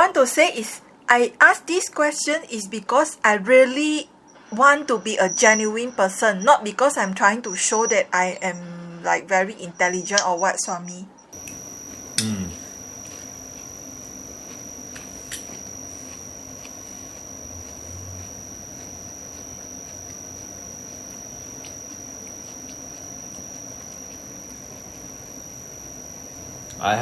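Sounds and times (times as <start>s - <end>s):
high-pitched whine: 11.4s - 27.0s.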